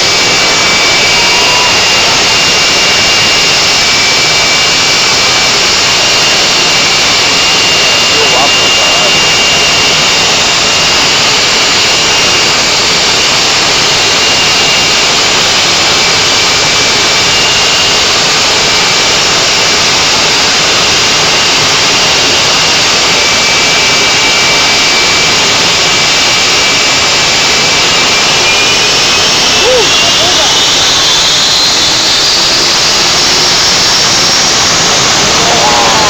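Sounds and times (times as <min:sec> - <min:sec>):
engine roaring: 0:00.0 - 0:36.0
faint high whine: 0:00.0 - 0:36.0.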